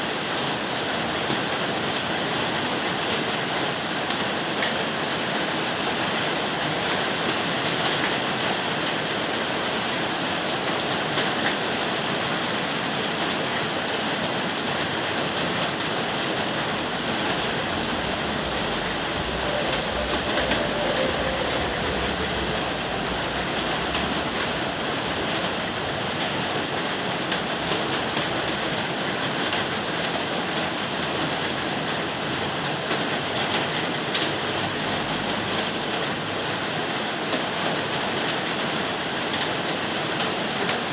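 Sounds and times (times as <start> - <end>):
rain falling: 0.1 - 40.9
low rumble: 16.4 - 28.8.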